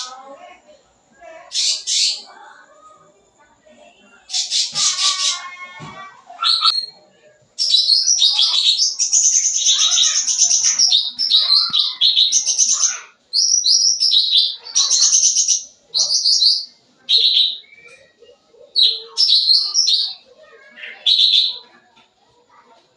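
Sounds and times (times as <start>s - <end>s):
bird singing rapid chirps and trills: 6.3s - 7.0s, 7.6s - 21.7s.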